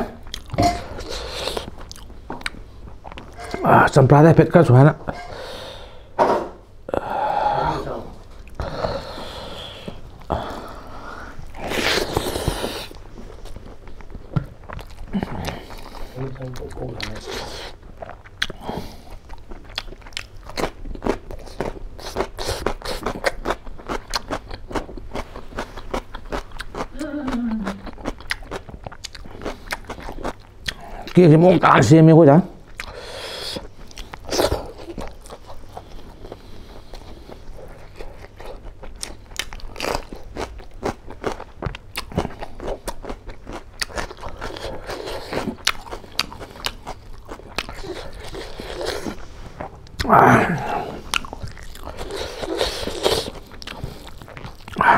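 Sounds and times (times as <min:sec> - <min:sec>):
chewing and crunching cucumber: 0:00.0 - 0:03.4, 0:10.0 - 0:31.8, 0:32.6 - 0:54.9
low falling hum: 0:48.9 - 0:52.5.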